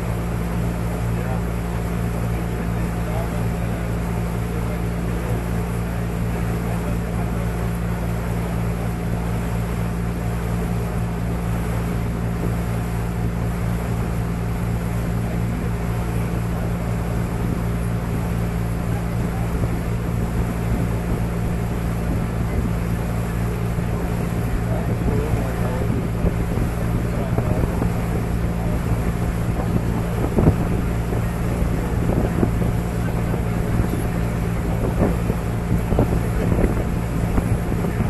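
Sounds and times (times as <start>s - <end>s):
boat engine droning: 0.0s - 38.0s
water rushing: 0.0s - 38.0s
wind noise: 23.9s - 38.0s.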